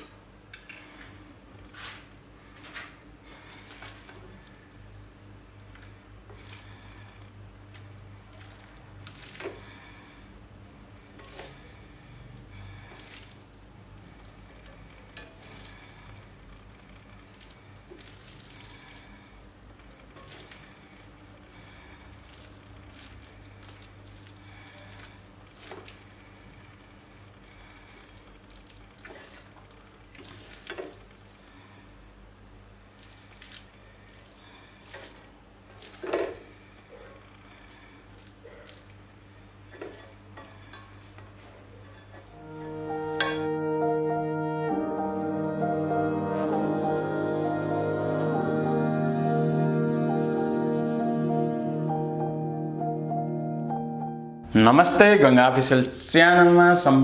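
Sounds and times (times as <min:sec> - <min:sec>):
low steady hum: 0:00.0 - 0:56.1
noodles sizzling in a wok: 0:12.7 - 0:36.7.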